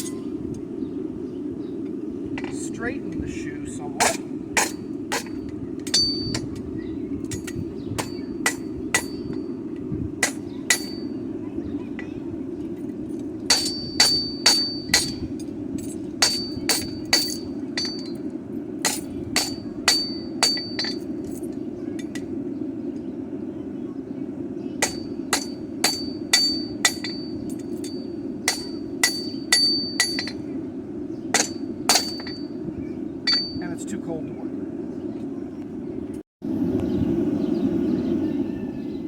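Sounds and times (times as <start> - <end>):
hammer ringing on an anvil: 4.0 - 6.6, 7.3 - 9.6, 10.2 - 11.2, 13.5 - 15.3, 16.2 - 18.2, 18.8 - 21.1, 24.8 - 30.4, 31.3 - 32.6, 33.2 - 33.7.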